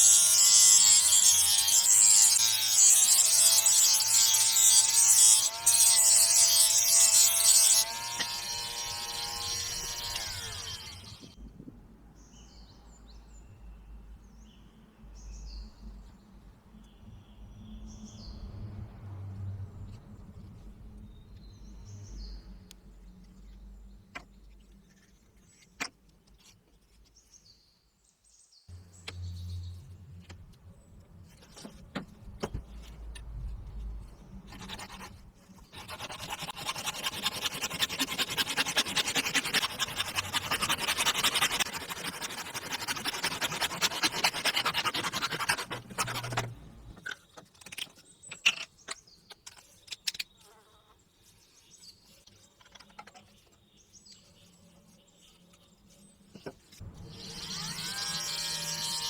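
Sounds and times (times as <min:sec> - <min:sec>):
electric power tool running: 0:00.0 - 0:11.3, 0:35.8 - 0:46.5, 0:57.0 - 0:59.0.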